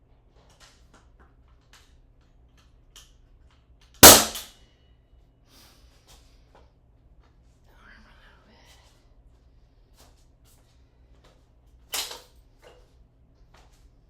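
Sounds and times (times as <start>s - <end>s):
nail gun bang: 4.0s - 4.5s.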